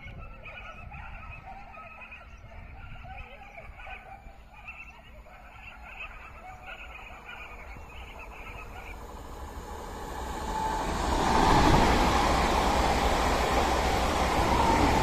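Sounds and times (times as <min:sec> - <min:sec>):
train passing at speed: 0:05.5 - 0:15.0.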